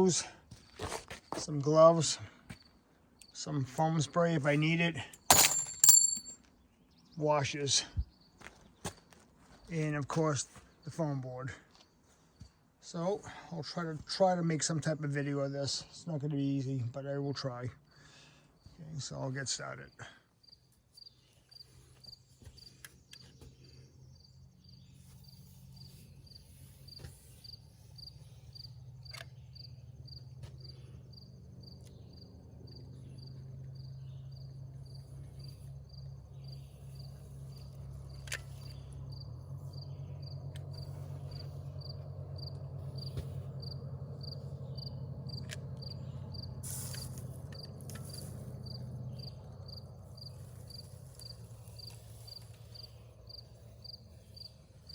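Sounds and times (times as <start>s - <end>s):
cricket chirping: 19.8s - 54.9s.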